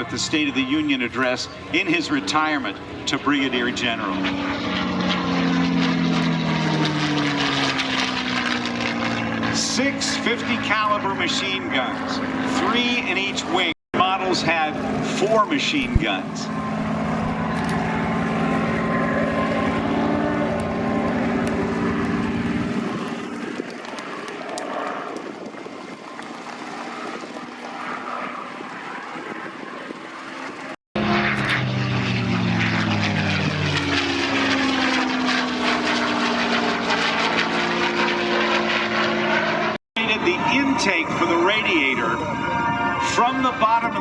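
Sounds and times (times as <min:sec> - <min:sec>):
propeller plane flying past: 0:00.0 - 0:44.0.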